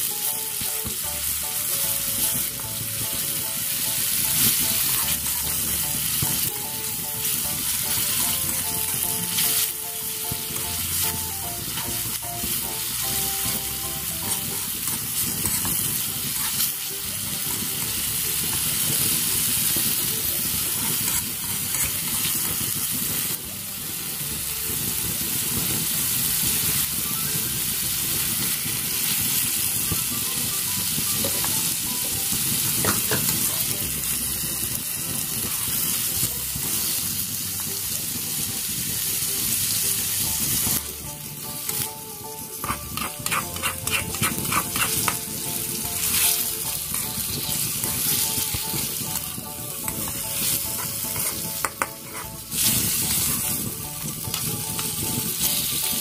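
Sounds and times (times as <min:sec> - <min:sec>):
food sizzling in oil: 0:00.0 - 0:56.0
metal spatula scraping wok: 0:13.4 - 0:16.8, 0:17.4 - 0:22.7, 0:42.5 - 0:48.9, 0:49.9 - 0:53.5.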